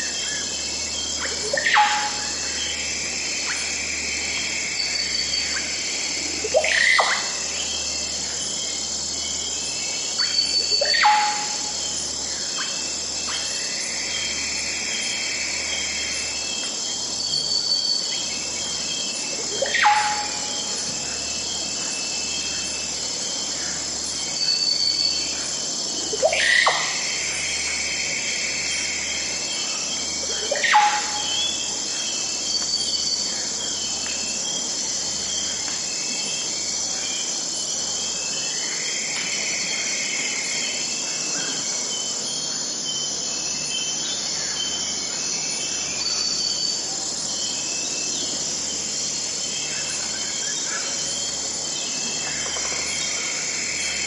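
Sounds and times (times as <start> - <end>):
insects chirping: 0.0 - 54.0
bird calls: 10.1 - 14.4, 15.0 - 22.8, 28.6 - 33.3.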